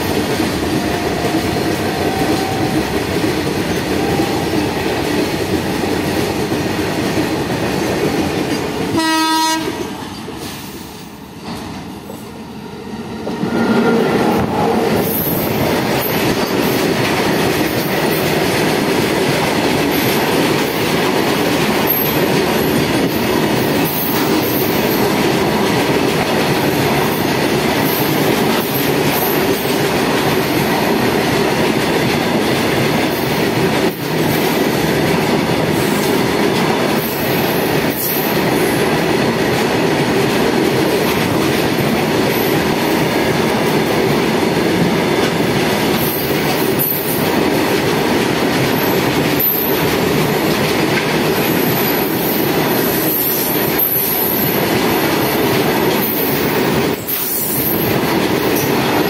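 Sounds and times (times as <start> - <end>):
train horn blast: 1.0 - 3.0, 8.9 - 10.0.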